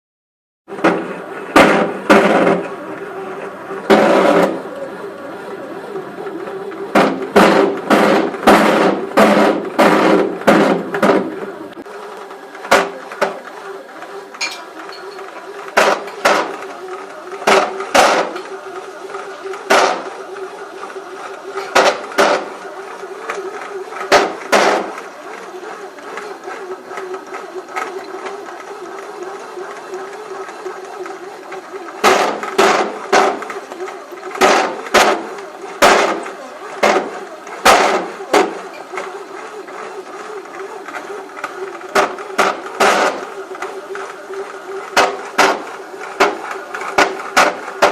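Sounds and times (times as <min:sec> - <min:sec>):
bread maker motor hum: 0:00.7 - 0:47.9
loud knocks from bread maker: 0:00.8 - 0:02.7, 0:03.9 - 0:04.6, 0:06.9 - 0:11.4, 0:12.7 - 0:13.4, 0:15.8 - 0:16.6, 0:17.4 - 0:18.4, 0:19.7 - 0:20.1, 0:21.7 - 0:22.5, 0:24.0 - 0:25.0, 0:32.0 - 0:33.6, 0:34.3 - 0:38.6, 0:42.0 - 0:43.2, 0:45.0 - 0:47.9
sharp knocks: 0:00.8 - 0:02.7, 0:06.9 - 0:11.3, 0:24.1 - 0:24.9.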